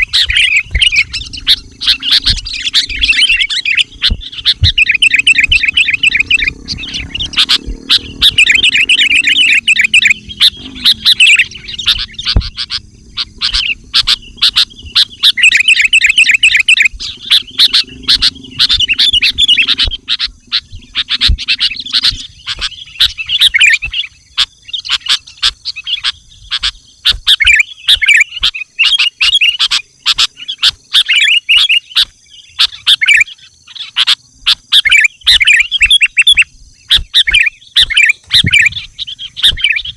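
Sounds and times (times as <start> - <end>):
low steady hum: 0.0 - 31.0
bird chattering song: 0.0 - 39.9.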